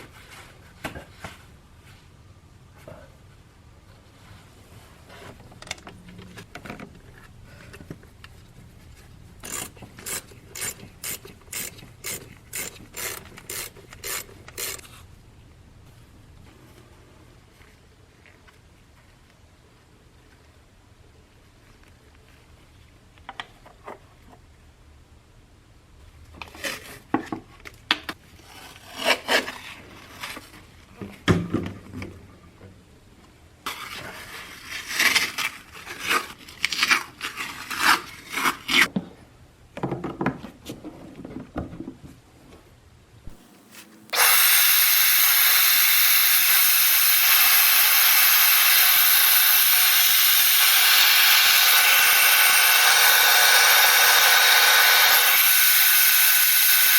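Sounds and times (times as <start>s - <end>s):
tools clicking and scraping: 9.4s - 15.0s
shop vac running: 43.3s - 56.9s.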